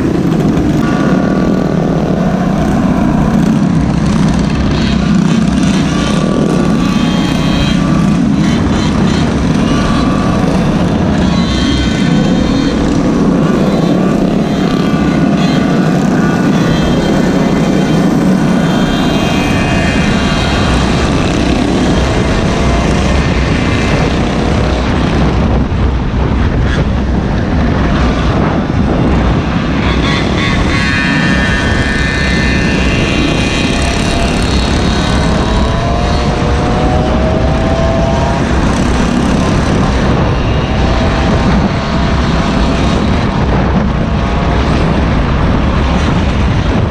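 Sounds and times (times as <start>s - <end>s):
small engines buzzing: 0.0s - 46.9s
wind noise on microphone: 0.0s - 46.9s.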